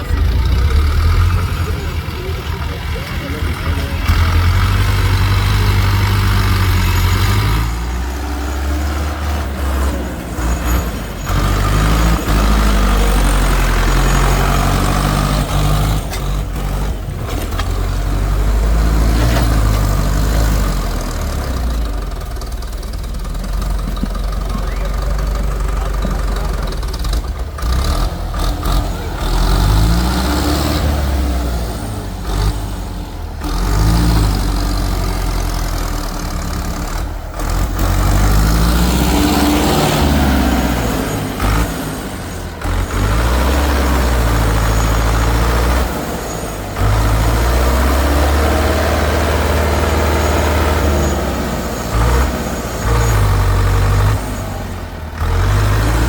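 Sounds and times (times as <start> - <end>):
tractor engine revving: 0.0 - 56.0.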